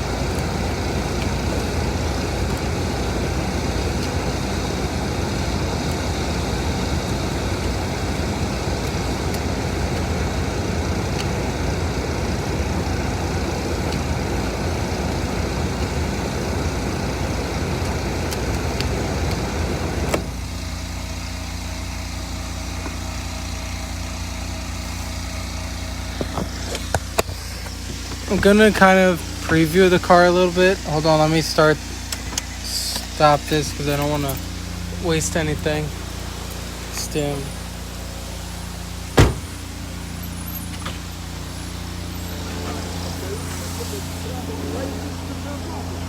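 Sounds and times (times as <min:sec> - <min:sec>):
car engine idling: 0:00.0 - 0:46.0
sharp knock: 0:39.2 - 0:39.5.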